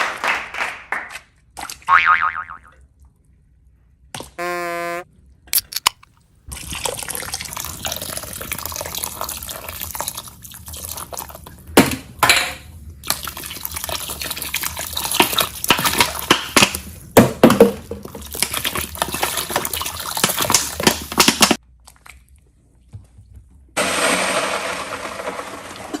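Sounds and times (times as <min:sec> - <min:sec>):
toilet flushing: 0:06.5 - 0:21.6, 0:23.8 - 0:26.0.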